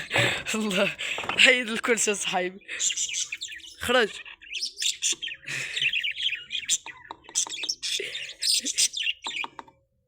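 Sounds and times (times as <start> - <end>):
parrots chirping and twittering: 0.0 - 10.0.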